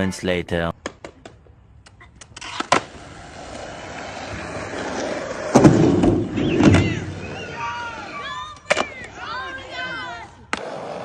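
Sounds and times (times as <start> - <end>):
skateboard wheels rolling on concrete: 0.9 - 11.0
skateboard clattering: 2.4 - 9.5.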